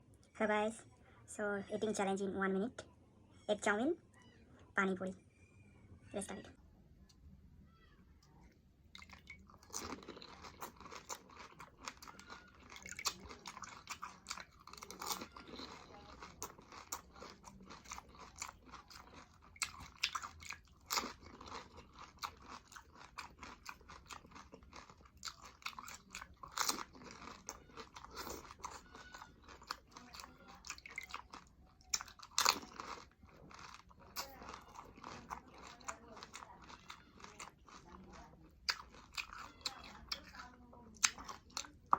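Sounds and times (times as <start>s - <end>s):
wet chewing: 8.2s - 41.9s
crisp crunching bites: 9.0s - 40.3s.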